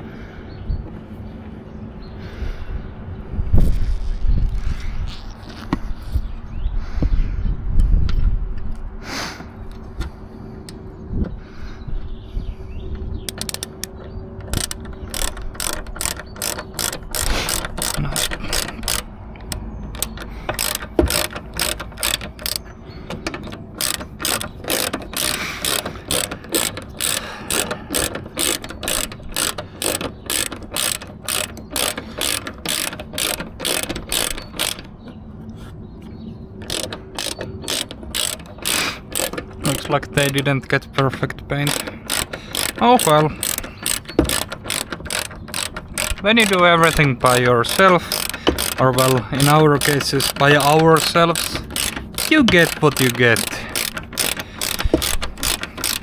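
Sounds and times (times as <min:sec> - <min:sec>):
ratchet wrench clicking: 0:13.3 - 0:35.0, 0:36.6 - 0:56.0.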